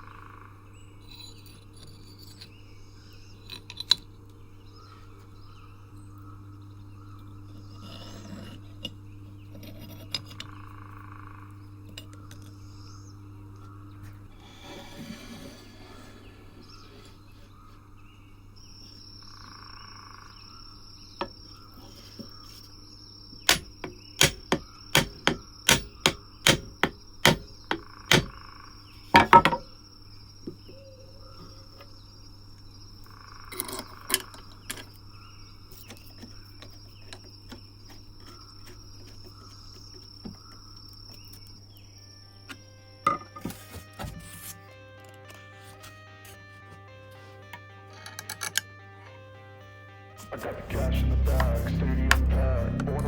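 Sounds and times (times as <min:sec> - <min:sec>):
hammer knocking on wood: 0:23.5 - 0:28.4, 0:29.2 - 0:29.7.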